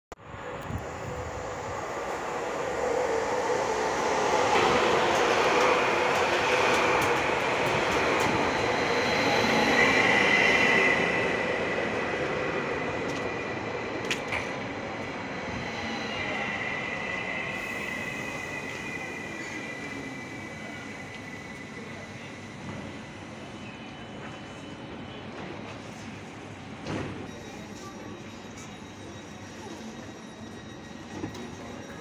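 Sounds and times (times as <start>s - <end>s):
electric train passing: 0.2s - 23.6s.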